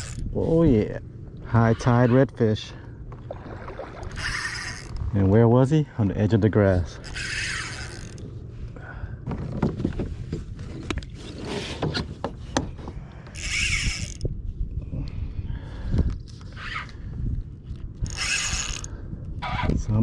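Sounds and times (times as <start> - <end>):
gear clicking and rattling: 0.0 - 0.3, 4.1 - 5.1, 6.9 - 8.3, 13.3 - 14.3, 18.0 - 18.9.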